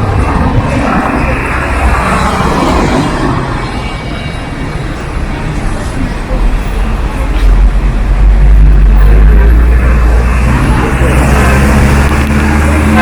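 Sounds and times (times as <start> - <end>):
traffic with low rumble: 0.0 - 13.0.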